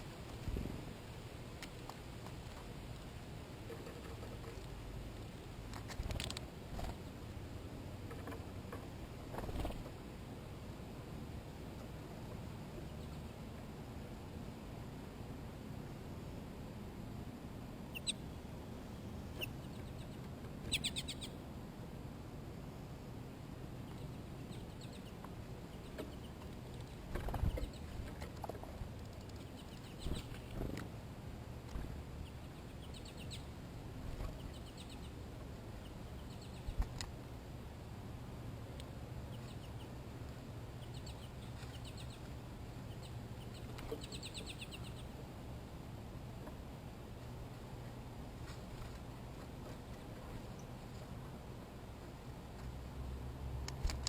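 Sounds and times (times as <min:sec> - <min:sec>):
steady low hum: 0:00.0 - 0:54.0
steady low rumble: 0:04.5 - 0:54.0
bird chirping: 0:17.9 - 0:21.4, 0:23.8 - 0:28.0, 0:29.2 - 0:30.6, 0:32.2 - 0:33.6, 0:34.2 - 0:35.2, 0:35.8 - 0:36.8, 0:39.3 - 0:40.0, 0:40.8 - 0:45.1.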